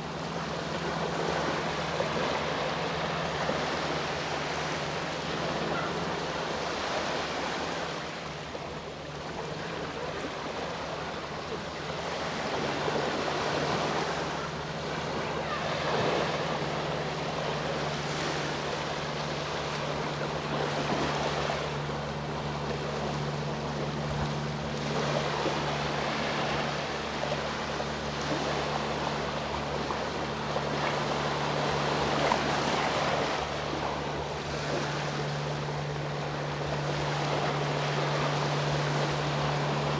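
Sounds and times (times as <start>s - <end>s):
steady low hum: 11.2s - 39.9s.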